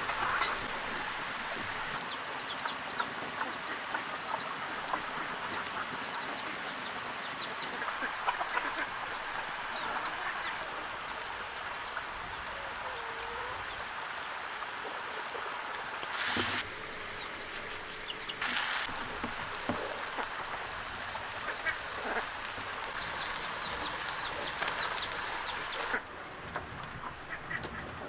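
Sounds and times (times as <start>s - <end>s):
farm fowl calling: 7.7s - 10.9s, 18.4s - 26.1s
hissing noise: 16.0s - 16.9s, 18.4s - 26.0s.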